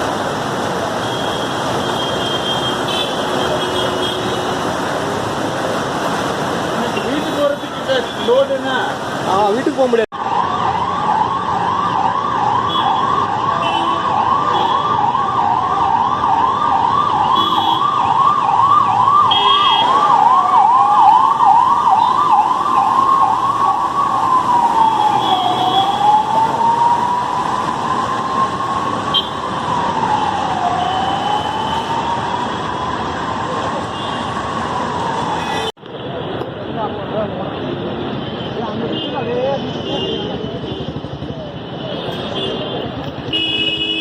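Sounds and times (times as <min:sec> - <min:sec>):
emergency vehicle siren: 0:05.0 - 0:36.3.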